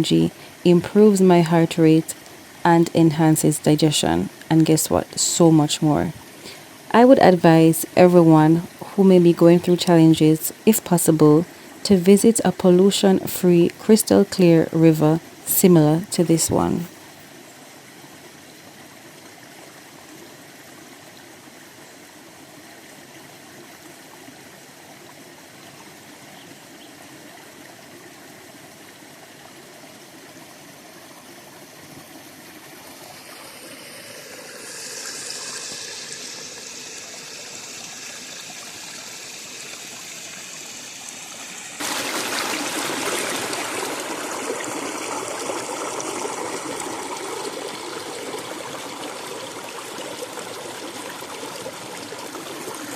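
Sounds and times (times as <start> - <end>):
river water rushing: 31.4 - 52.9.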